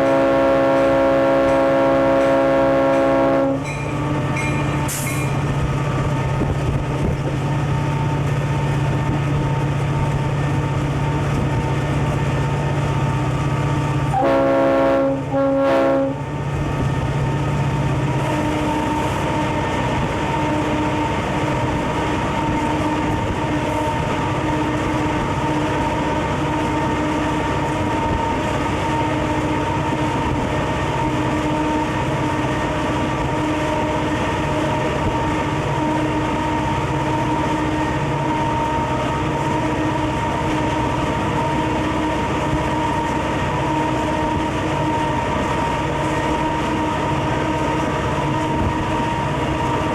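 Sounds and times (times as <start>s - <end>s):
locomotive horn: 0.0s - 5.0s, 14.0s - 16.4s
train wheels on rail: 0.0s - 49.9s.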